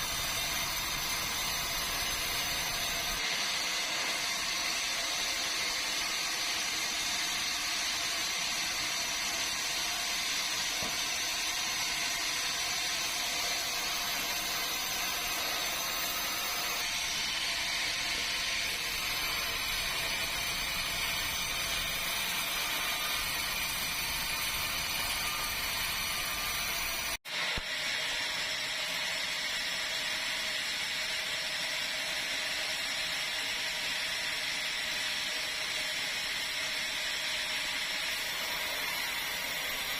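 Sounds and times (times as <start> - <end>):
sawmill saw cutting log: 0.0 - 27.2.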